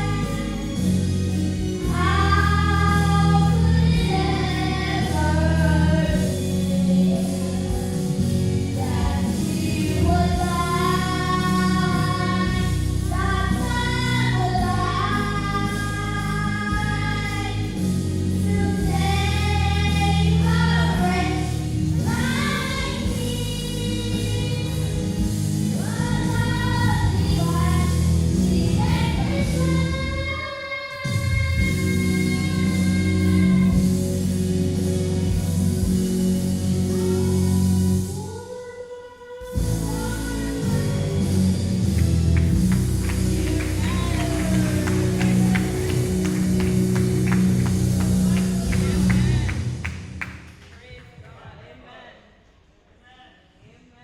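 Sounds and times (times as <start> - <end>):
steady bass line: 0.0 - 30.2, 31.4 - 38.1, 39.6 - 50.6
gospel singing with instrumental backing: 0.0 - 38.5, 39.4 - 50.6.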